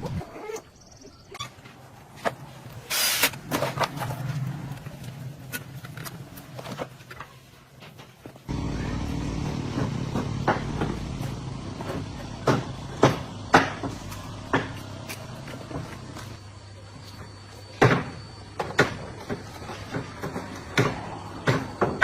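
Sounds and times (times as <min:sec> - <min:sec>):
engine humming: 0:08.5 - 0:16.4.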